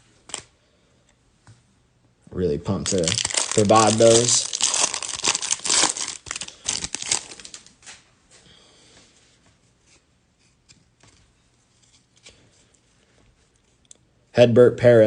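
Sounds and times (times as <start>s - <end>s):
trading cards and wrapper rustling: 2.7s - 7.8s.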